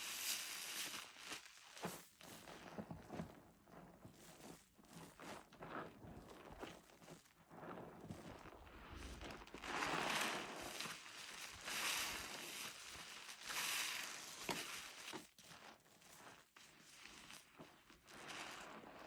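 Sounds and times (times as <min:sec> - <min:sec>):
soapy crackling: 0:08.4 - 0:19.0
wet sponge squeezed: 0:08.7 - 0:19.0.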